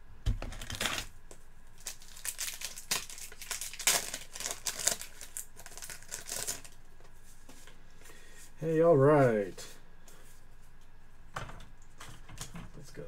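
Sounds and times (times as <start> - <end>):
plastic wrapper crinkling: 0.4 - 1.1, 1.8 - 6.9.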